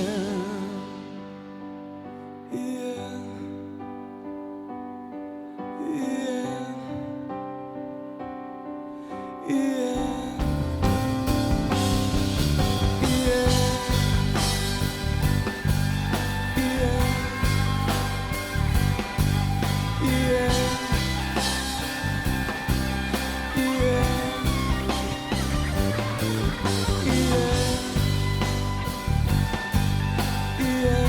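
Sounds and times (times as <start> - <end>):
drum kit beat: 10.2 - 31.0
sustained lead melody: 10.4 - 31.0.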